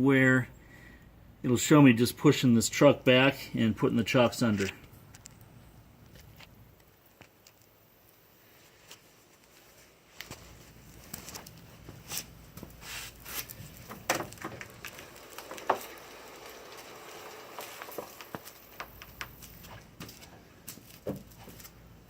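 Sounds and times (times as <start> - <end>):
footsteps: 8.6 - 21.9
scuffs clicks and knocks: 8.8 - 16.1, 16.8 - 21.9.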